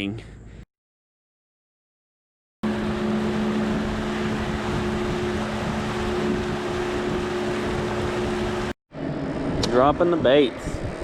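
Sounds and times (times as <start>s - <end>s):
boat motor running: 2.6s - 9.8s
wind on microphone: 2.6s - 11.0s.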